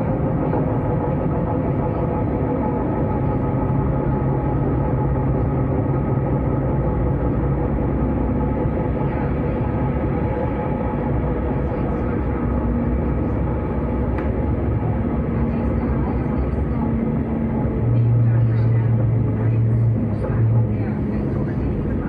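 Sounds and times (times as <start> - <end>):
constant hum: 0.0 - 22.0
train wheels rumbling on track: 0.0 - 22.0.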